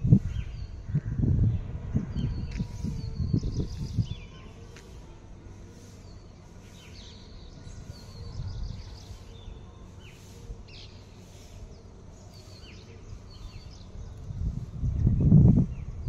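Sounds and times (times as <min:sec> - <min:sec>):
low outdoor rumble: 0:00.0 - 0:16.0
small birds chirping: 0:00.0 - 0:16.0.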